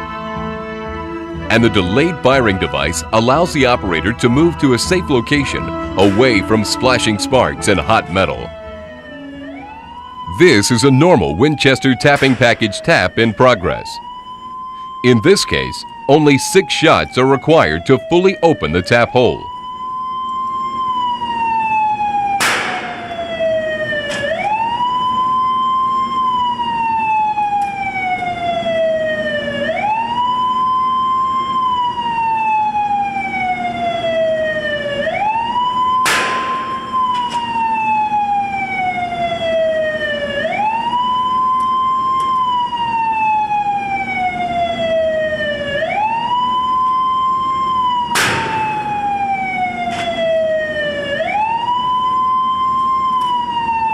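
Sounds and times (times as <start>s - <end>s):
wailing siren: 0.0s - 53.9s
industrial gun firing bangs: 12.1s - 12.8s, 22.4s - 23.2s, 36.0s - 37.0s, 48.1s - 49.0s.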